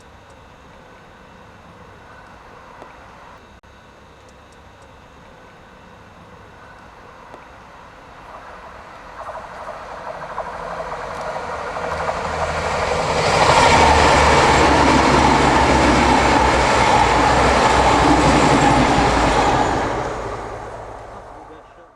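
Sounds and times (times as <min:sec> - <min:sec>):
train passing: 0:06.2 - 0:21.9.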